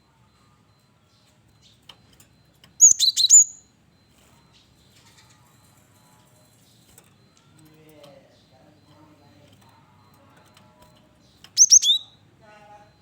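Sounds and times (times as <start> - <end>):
bird chirping: 2.7 - 3.7, 7.9 - 12.2.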